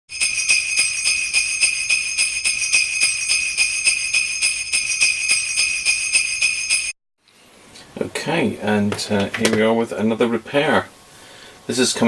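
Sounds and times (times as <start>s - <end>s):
sleigh bells jingling: 0.1s - 7.0s.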